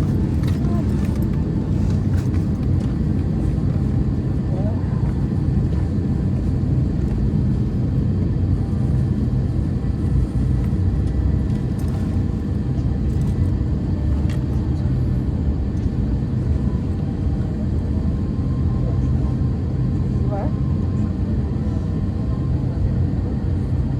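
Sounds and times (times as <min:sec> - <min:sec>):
airplane cabin rumble: 0:00.0 - 0:23.9.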